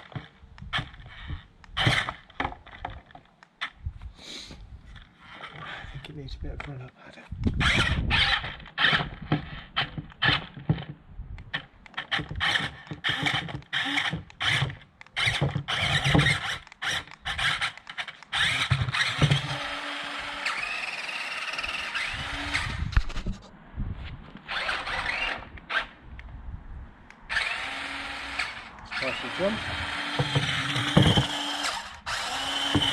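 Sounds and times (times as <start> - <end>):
toy vehicle motors whining: 0.0 - 2.3, 5.1 - 6.1, 7.5 - 10.6, 11.8 - 23.4, 24.4 - 26.0, 27.3 - 32.9.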